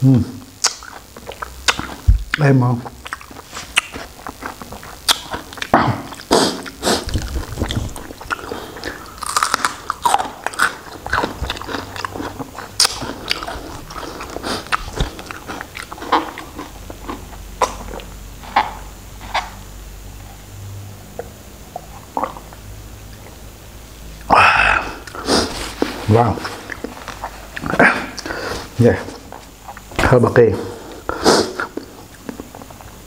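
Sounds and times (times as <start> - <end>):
person chewing shrimp: 0.5 - 19.6, 21.1 - 23.4, 24.2 - 29.9, 30.9 - 33.0
mouth clicks and wet smacks: 0.6 - 9.0, 17.6 - 18.7, 21.2 - 23.3.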